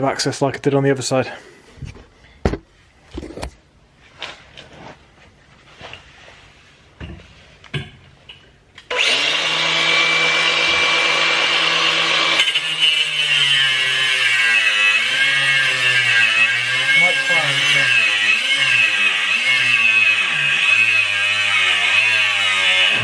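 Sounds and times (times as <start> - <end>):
angle grinder grinding metal: 8.9 - 23.0.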